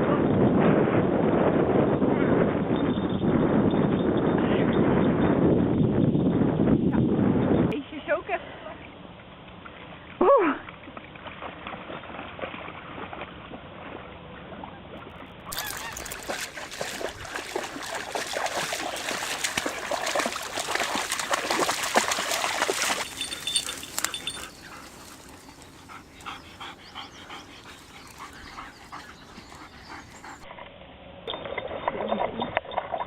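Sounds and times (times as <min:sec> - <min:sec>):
sled dogs yelping and barking: 0:15.5 - 0:30.5.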